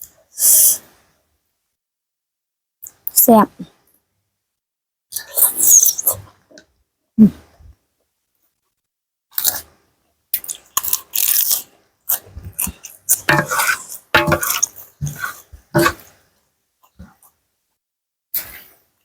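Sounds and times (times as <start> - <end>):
person chewing crunchy food: 10.4 - 16.1.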